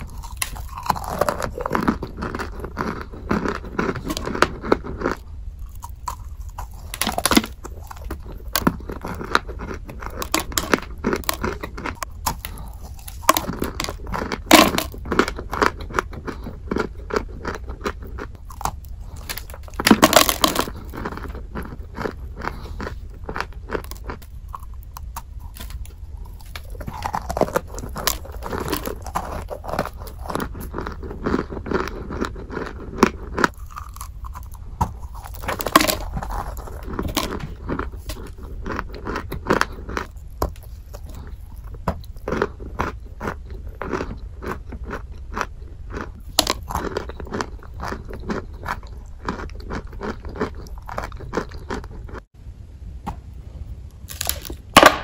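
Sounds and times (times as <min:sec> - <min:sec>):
crunching hard chalky chunks: 0:00.0 - 0:52.3.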